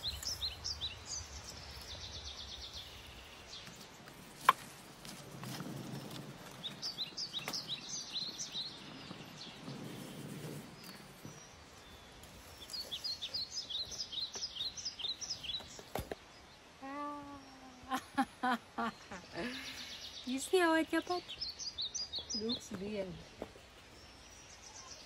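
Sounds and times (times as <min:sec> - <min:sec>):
small birds chirping: 0:00.0 - 0:18.2, 0:18.8 - 0:25.0
soft low rustle: 0:08.5 - 0:14.3.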